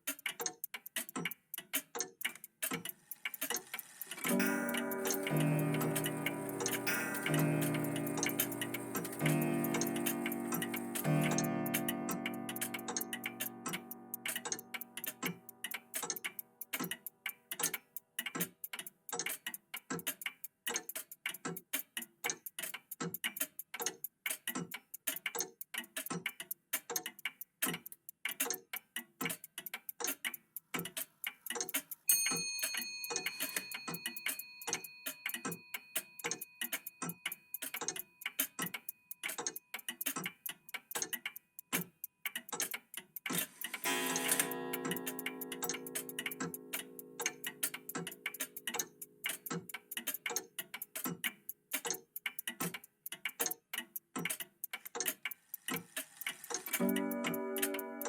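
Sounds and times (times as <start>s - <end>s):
mechanical clocks ticking: 0.0s - 58.0s
high bell chime: 4.2s - 11.7s, 32.1s - 36.6s.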